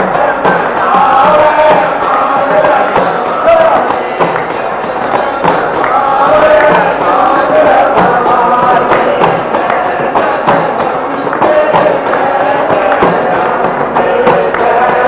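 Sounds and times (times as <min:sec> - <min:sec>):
devotional song: 0:00.0 - 0:15.0
hand percussion beat: 0:00.0 - 0:15.0
jingling metal percussion: 0:00.0 - 0:15.0.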